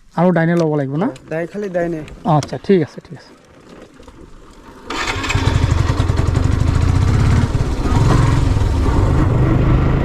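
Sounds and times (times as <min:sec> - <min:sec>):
motorcycle engine pulling away: 0:04.8 - 0:10.0.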